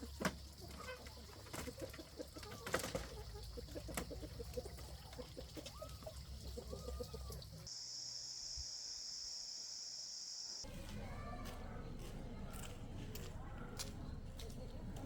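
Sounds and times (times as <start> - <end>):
chickens clucking: 0.0 - 7.7.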